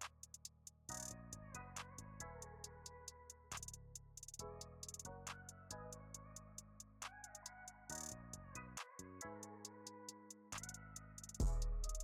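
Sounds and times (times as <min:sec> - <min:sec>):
soft synthesizer chords music: 0:00.0 - 0:12.0
light ticking beat: 0:10.1 - 0:12.0.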